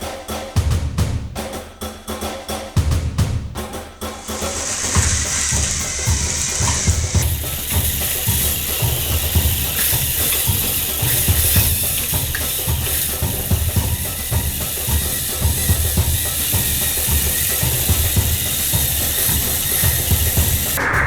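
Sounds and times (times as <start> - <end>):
dance music with drum beat: 0.0 - 21.0
toy train motors whirring: 4.0 - 20.8
plastic gears grinding: 4.1 - 20.8.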